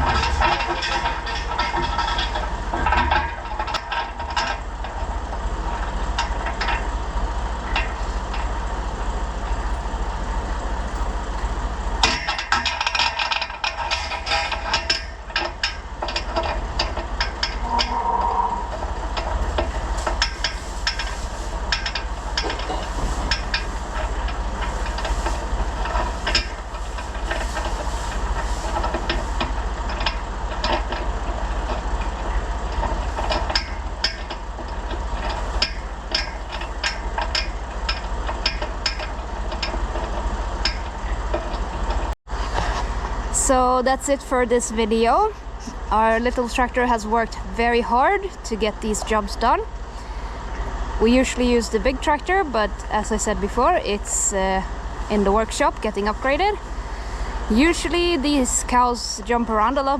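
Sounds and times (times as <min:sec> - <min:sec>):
clanks and knocks: 0:00.0 - 0:43.2
tractor engine running: 0:00.0 - 0:59.9.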